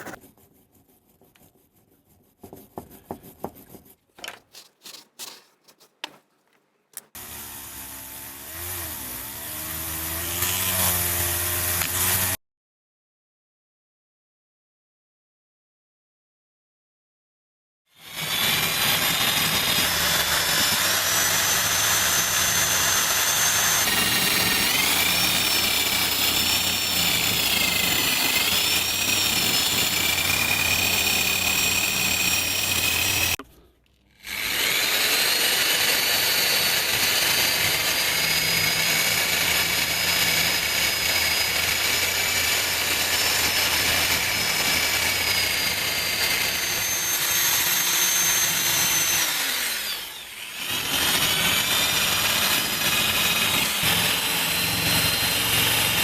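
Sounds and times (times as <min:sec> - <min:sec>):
power tool motor whining: 0:18.1 - 0:33.4, 0:34.2 - 0:56.0.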